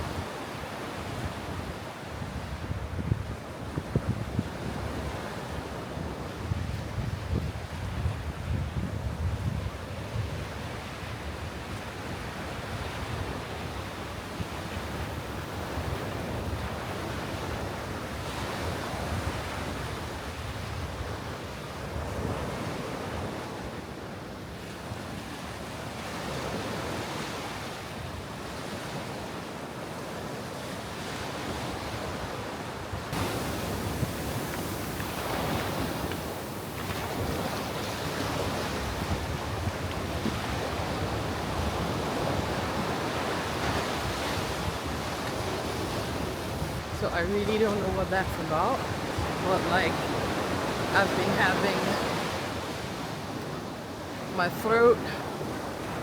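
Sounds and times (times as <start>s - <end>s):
wind rumbling on microphone: 0.0s - 23.5s, 31.4s - 56.0s
surf washing up on beach: 25.7s - 56.0s.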